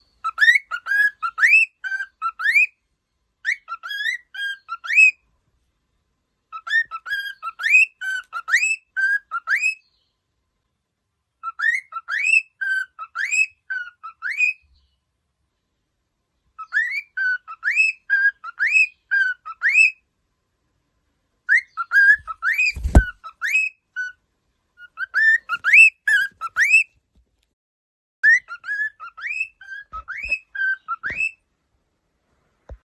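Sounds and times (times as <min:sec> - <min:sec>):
cockatiel whistling: 0:00.2 - 0:02.7, 0:03.4 - 0:05.2, 0:06.6 - 0:09.8, 0:11.4 - 0:14.6, 0:16.6 - 0:20.0, 0:21.5 - 0:24.2, 0:24.9 - 0:26.9, 0:28.2 - 0:31.4
low thump: 0:22.7 - 0:23.1.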